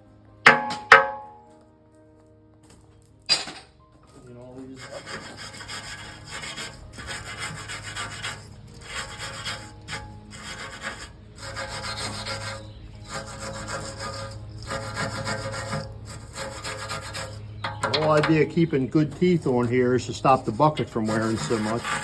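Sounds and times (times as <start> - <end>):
wire brush scrubbing steel: 4.7 - 22.0.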